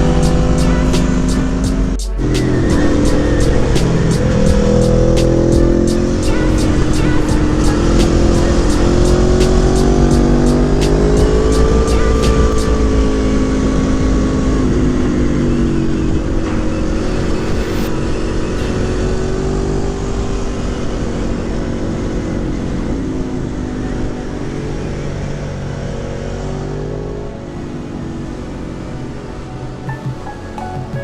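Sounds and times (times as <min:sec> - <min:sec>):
motorcycle engine running: 0:00.0 - 0:15.8
wind rushing over microphone: 0:00.0 - 0:24.4.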